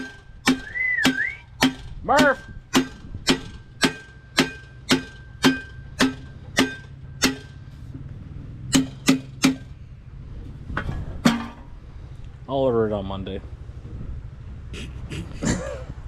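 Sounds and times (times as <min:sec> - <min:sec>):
hammer striking metal: 0:00.0 - 0:07.8, 0:08.7 - 0:09.8, 0:11.2 - 0:11.7.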